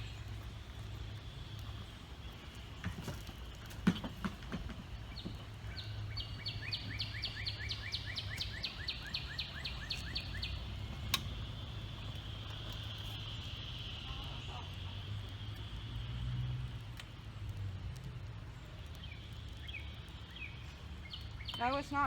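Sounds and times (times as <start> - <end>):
songbird trilling: 5.1 - 12.1, 19.0 - 22.0.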